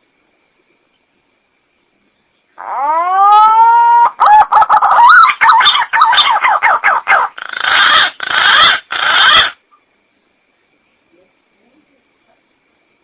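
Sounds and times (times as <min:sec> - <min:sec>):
pigeon calling: 0:02.6 - 0:09.6.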